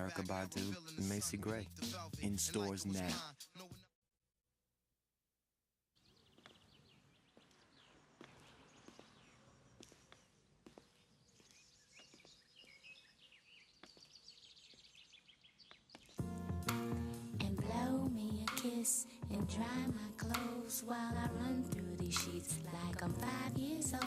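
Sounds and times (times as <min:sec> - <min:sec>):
faint bird chirps: 0:06.0 - 0:16.2.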